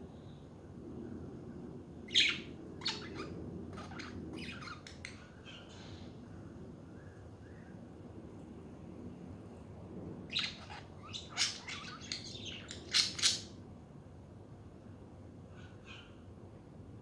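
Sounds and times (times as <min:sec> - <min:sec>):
budgerigars chirping: 0:02.1 - 0:05.6, 0:10.3 - 0:13.5.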